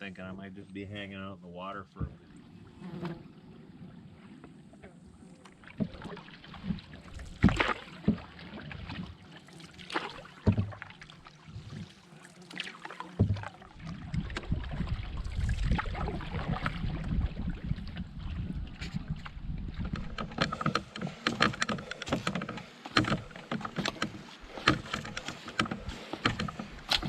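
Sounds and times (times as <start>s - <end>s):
water splashing: 1.6s - 27.0s
canoe paddle strokes: 2.0s - 27.0s
knocks against canoe hull: 5.8s - 9.1s, 10.4s - 10.9s, 13.2s - 13.5s, 19.7s - 27.0s.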